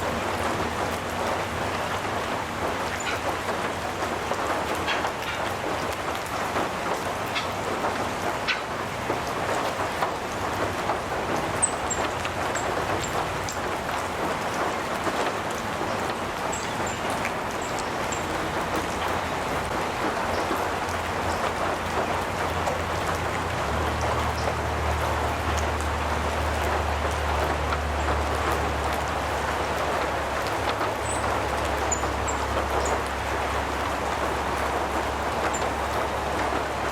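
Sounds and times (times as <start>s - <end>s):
rain on a metal roof: 0.0s - 36.9s.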